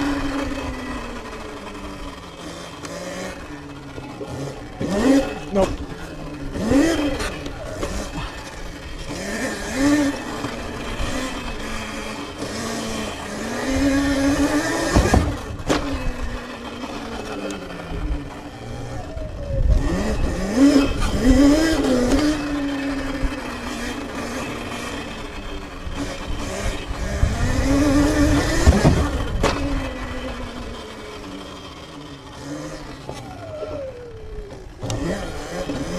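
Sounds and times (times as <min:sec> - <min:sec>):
electric motorbike motor whining: 0:00.0 - 0:35.9
sharp knocks: 0:14.7 - 0:16.1
wind rumble on microphone: 0:26.0 - 0:30.4.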